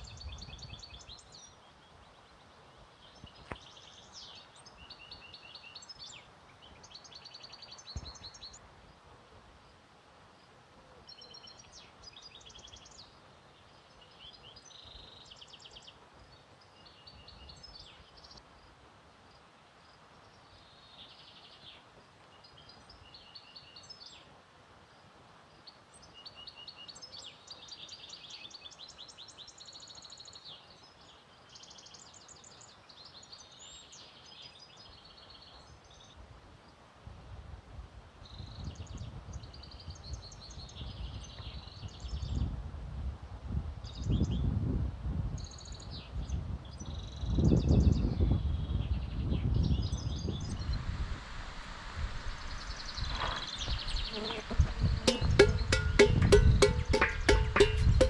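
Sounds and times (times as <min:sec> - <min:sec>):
songbirds singing faintly: 0:00.0 - 0:58.0
soft knock: 0:54.5 - 0:58.0.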